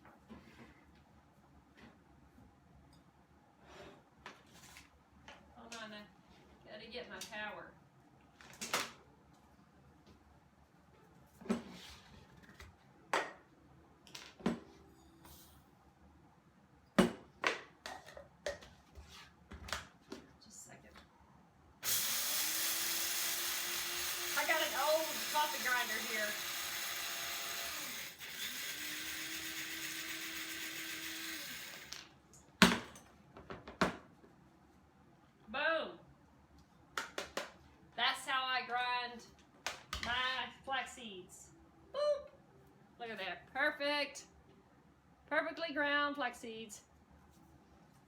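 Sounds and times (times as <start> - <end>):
electric coffee grinder motor: 21.8 - 32.0.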